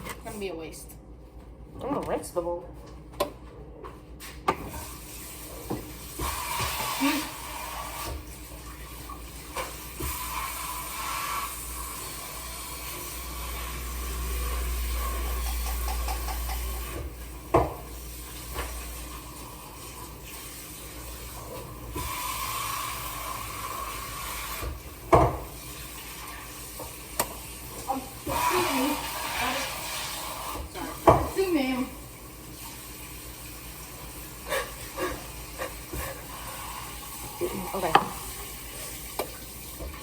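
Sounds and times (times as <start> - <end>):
tap running into bowl: 15.2 - 17.9, 24.3 - 25.5, 28.2 - 31.4, 37.8 - 38.5
bowl knocking against sink: 15.4 - 17.8, 25.1 - 25.5, 31.0 - 31.4.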